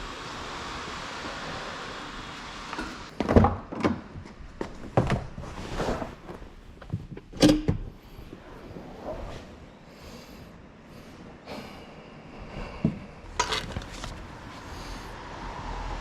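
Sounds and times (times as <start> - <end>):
steady hiss: 0.0 - 3.1.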